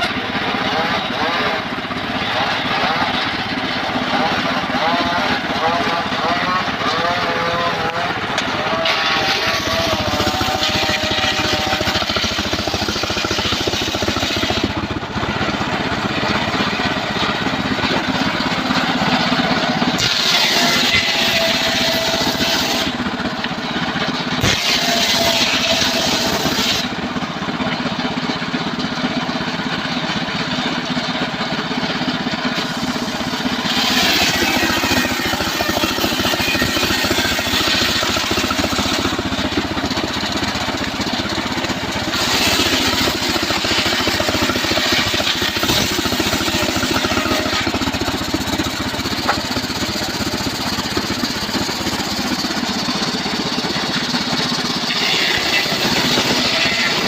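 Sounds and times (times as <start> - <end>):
saw blade ripping timber: 0.0 - 23.0, 24.3 - 27.0, 32.5 - 57.0
engine-driven sawmill running: 0.0 - 57.0.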